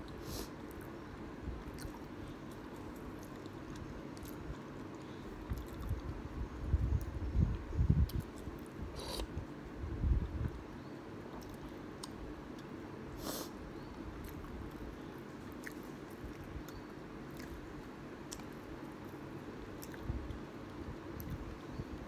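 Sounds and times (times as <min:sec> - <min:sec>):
chewing noodles: 0:01.6 - 0:06.2, 0:14.2 - 0:19.2.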